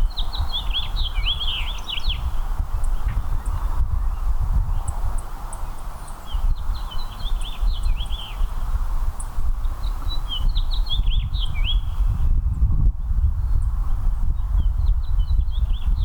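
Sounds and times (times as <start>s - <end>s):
songbird warbling chirps: 0.0s - 8.5s, 9.6s - 12.0s.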